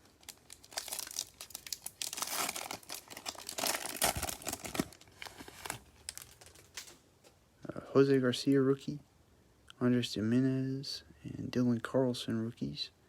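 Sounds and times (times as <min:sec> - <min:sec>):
plastic wrapper tearing and crinkling: 0:00.0 - 0:07.0.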